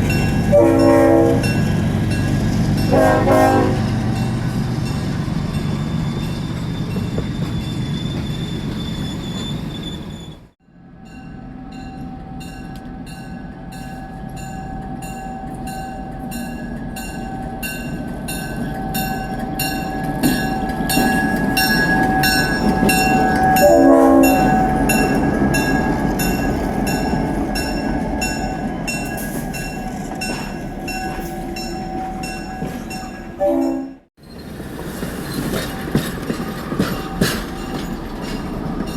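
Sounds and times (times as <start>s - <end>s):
train wheels clicking over rail joints: 16.3s - 23.7s, 34.2s - 38.9s.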